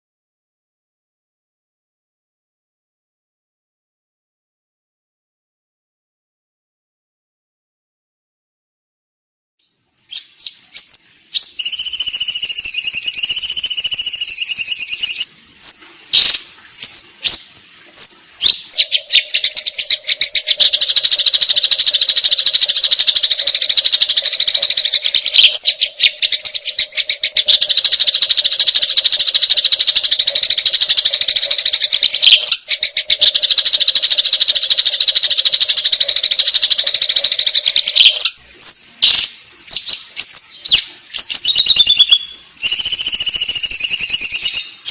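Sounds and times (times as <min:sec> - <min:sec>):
sparrows chattering: 0:10.4 - 0:38.8.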